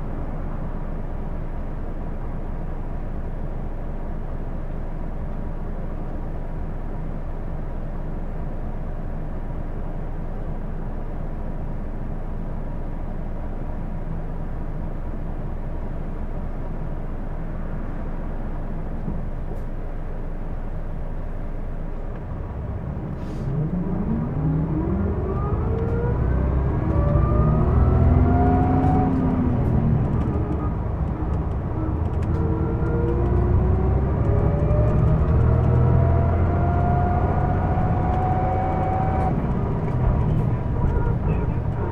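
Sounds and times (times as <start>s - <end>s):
bus engine running: 0.0s - 41.9s
bus accelerating whine: 16.6s - 41.9s.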